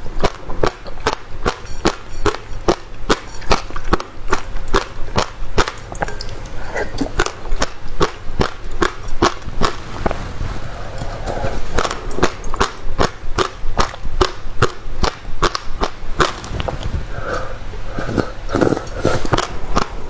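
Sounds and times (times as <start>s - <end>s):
crunching seeds while chewing: 0.0s - 20.0s.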